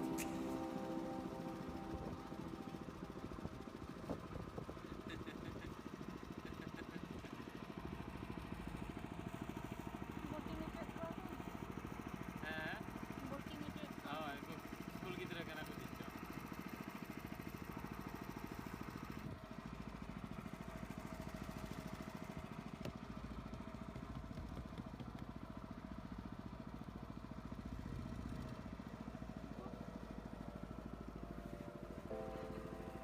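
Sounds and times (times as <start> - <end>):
music: 0.0 - 4.0, 31.5 - 33.0
boat engine chugging: 0.0 - 33.0.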